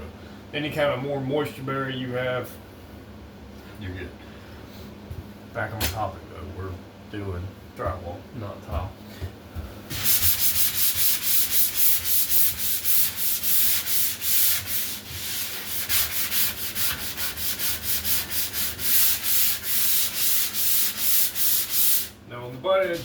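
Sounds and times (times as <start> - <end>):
sanding sponge rubbing drywall: 9.9 - 22.2.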